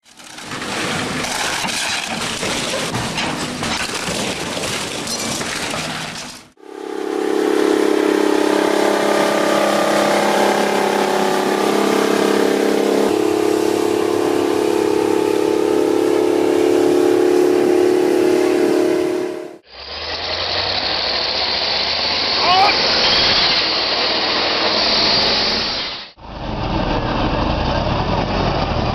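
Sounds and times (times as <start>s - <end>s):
rough crackling mechanical noise: 0.0s - 6.6s, 19.6s - 28.9s
droning engine hum: 6.6s - 22.6s.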